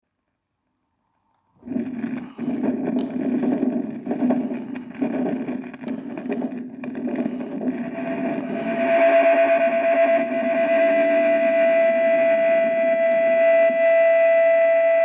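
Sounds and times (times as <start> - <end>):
distorted electric guitar drone: 1.6 - 15.0
high sustained tone: 7.7 - 15.0.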